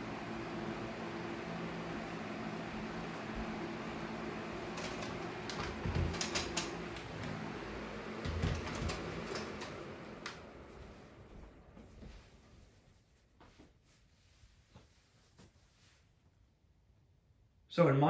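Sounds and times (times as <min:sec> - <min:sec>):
box fan humming: 0:00.0 - 0:12.1.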